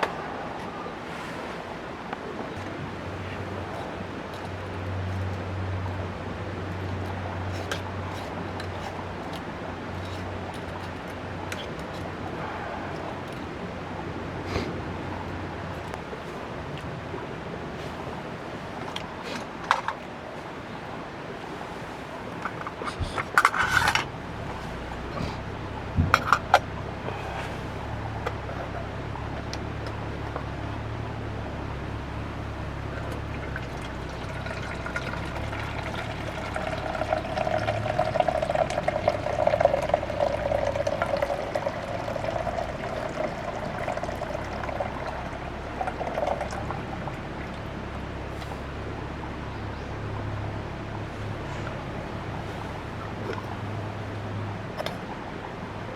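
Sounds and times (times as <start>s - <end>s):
water pouring into a container: 32.4s - 48.7s.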